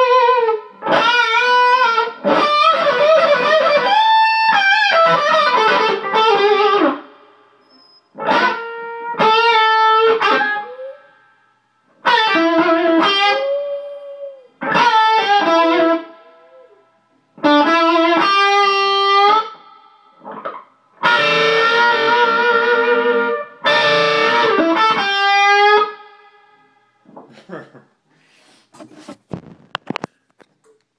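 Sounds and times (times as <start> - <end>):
electric guitar blues licks: 0.0 - 7.4, 8.1 - 11.3, 11.9 - 16.8, 17.4 - 27.2.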